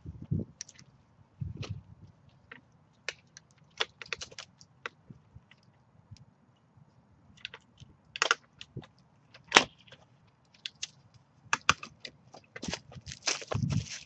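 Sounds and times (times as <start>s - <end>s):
wooden ladder creaking and cracking: 1.6s - 5.7s, 7.4s - 14.0s.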